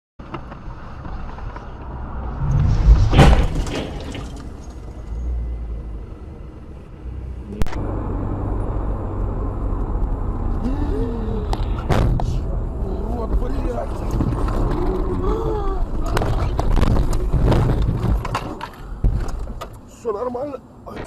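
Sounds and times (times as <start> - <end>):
rough burst of noise: 1.6 - 4.7.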